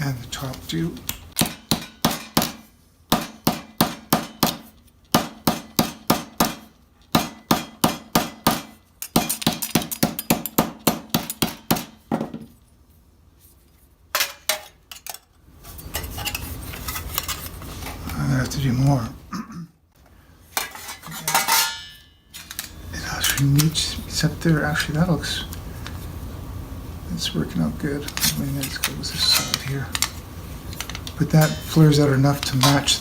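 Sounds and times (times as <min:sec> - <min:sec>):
hammer striking steel plate: 0:01.4 - 0:04.6, 0:05.2 - 0:12.0, 0:31.4 - 0:31.9.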